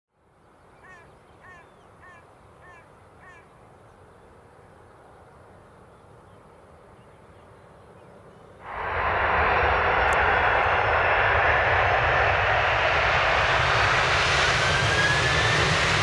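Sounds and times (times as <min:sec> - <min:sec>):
bird calling: 0:00.8 - 0:03.6
faint low rumble: 0:08.6 - 0:14.4.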